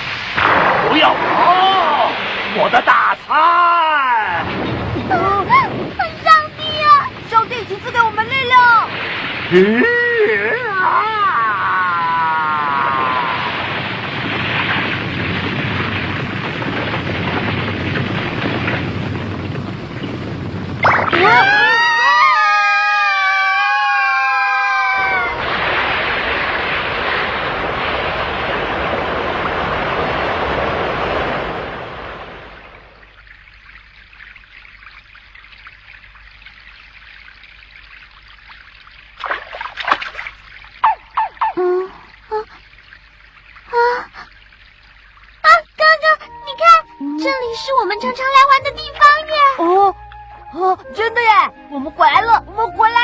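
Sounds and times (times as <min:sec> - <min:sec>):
water trickling and lapping: 0:00.0 - 0:11.7, 0:13.0 - 0:22.5, 0:25.0 - 0:53.0
rushing rumbling roar: 0:00.0 - 0:32.9.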